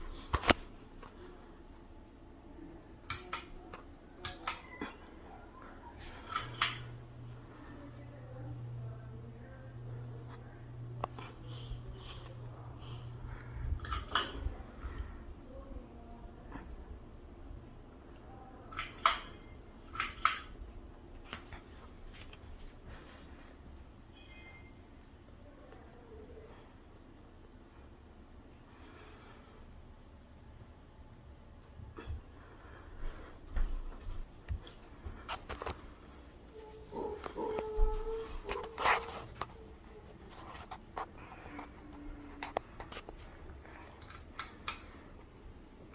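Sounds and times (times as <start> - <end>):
fan motor humming: 0.0 - 24.1.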